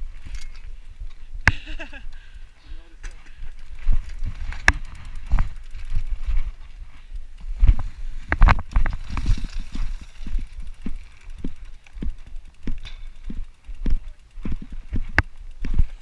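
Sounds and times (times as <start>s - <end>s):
bicycle thumping over bumps: 3.0s - 16.0s
bicycle rattling knocks: 3.1s - 6.7s, 7.6s - 16.0s.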